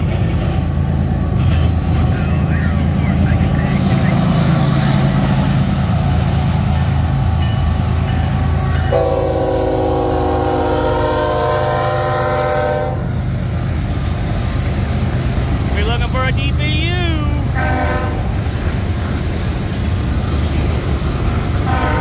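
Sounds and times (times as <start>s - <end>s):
diesel locomotive engine rumble: 0.0s - 22.0s
locomotive air horn chord: 8.6s - 13.1s, 17.5s - 18.3s, 21.7s - 22.0s.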